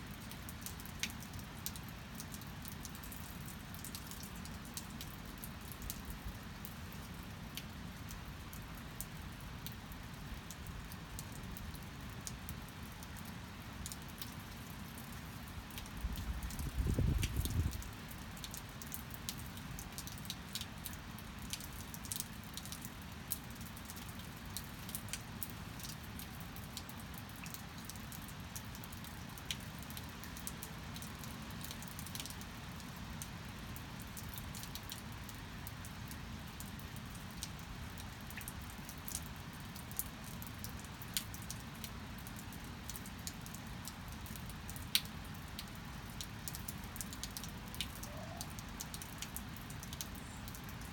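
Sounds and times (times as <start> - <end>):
steady rain falling: 0.0 - 50.9
raindrops ticking: 0.1 - 50.9.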